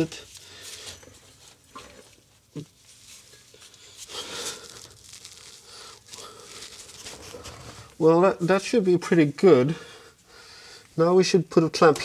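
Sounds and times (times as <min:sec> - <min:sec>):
scraping rustle of pipe: 0:00.0 - 0:08.5.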